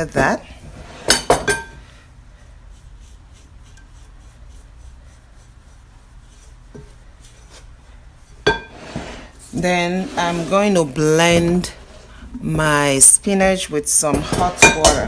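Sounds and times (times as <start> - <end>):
low steady hum: 0.0 - 15.0
faint rubbing: 2.4 - 12.2.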